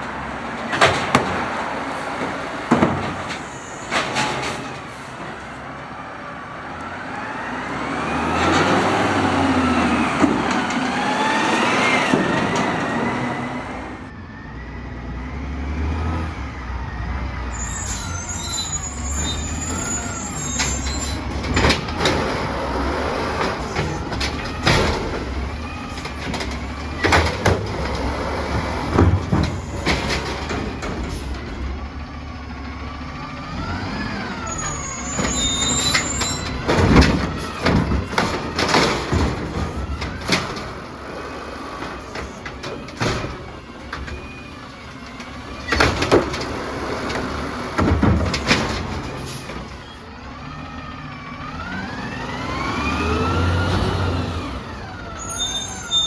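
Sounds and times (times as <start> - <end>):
clanks and bangs of trash cart: 0.0 - 14.1, 17.6 - 56.0
garbage truck engine idling: 0.0 - 14.2, 17.0 - 56.0
hydraulic arm whine: 1.8 - 14.2, 33.4 - 50.0.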